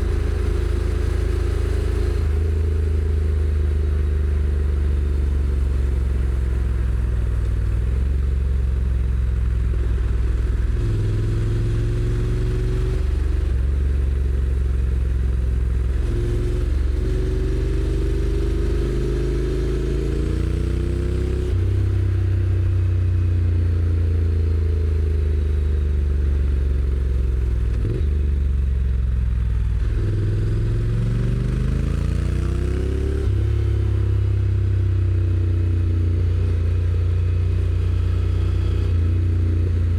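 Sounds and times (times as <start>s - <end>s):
motorcycle engine revving: 29.7s - 34.8s.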